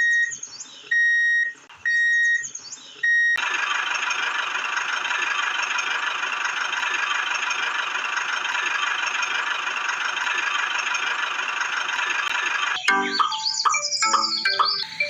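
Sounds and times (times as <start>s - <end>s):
small water pump motor whining: 3.4s - 12.8s.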